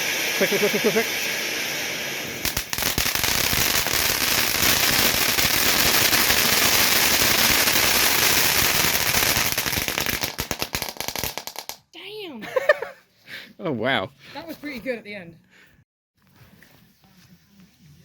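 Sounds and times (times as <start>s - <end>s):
firework hissing: 0.0s - 11.8s
firework rapid crackling: 0.0s - 11.8s.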